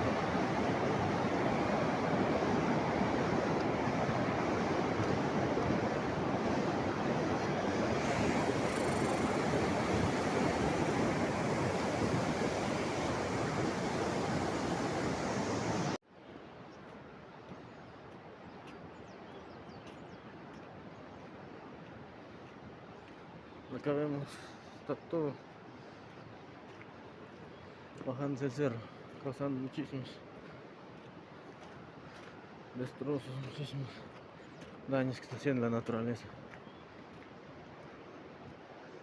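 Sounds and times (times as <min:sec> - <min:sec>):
rushing water roar: 0:00.0 - 0:16.0
faint ticks: 0:08.7 - 0:09.3.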